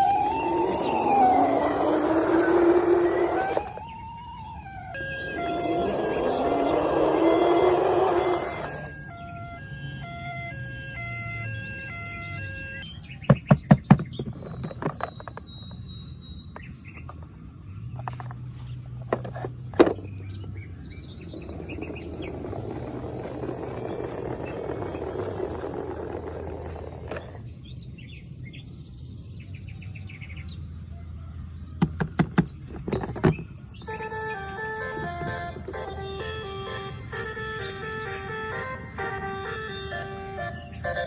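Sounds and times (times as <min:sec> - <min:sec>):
faint high whine: 0:00.0 - 0:12.8.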